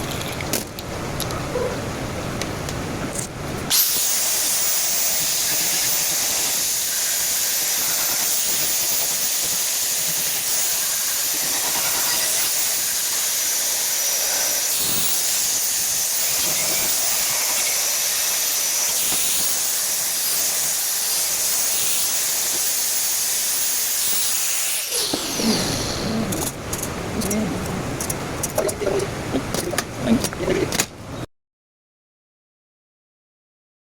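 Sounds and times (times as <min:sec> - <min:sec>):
welding arc hissing: 0:03.7 - 0:26.1.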